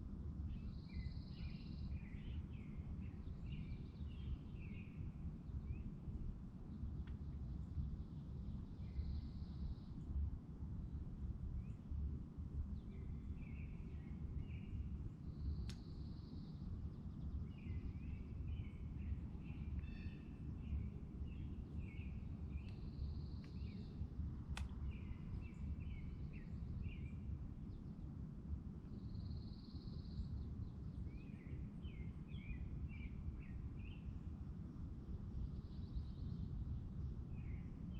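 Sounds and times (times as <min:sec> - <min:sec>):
small birds chirping: 0:12.9 - 0:27.9.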